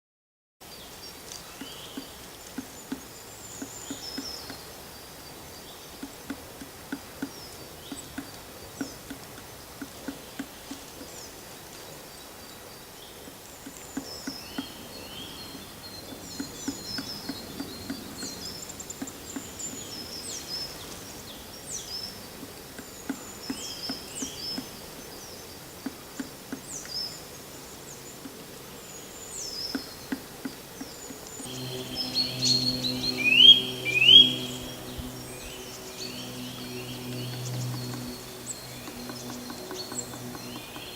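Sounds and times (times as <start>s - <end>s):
woodpecker knocking on wood: 1.6s - 4.8s, 5.9s - 11.3s, 13.3s - 14.9s, 15.5s - 20.2s, 22.4s - 24.8s, 25.8s - 26.9s, 29.6s - 31.4s, 37.1s - 40.9s
birds chirping and whistling: 31.4s - 40.9s.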